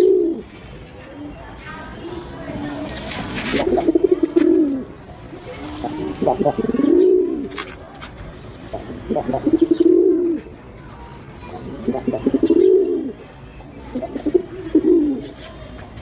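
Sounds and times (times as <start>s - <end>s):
pigeon cooing: 0.0s - 0.5s, 2.6s - 7.6s, 8.7s - 10.6s, 11.6s - 13.2s, 13.8s - 15.6s.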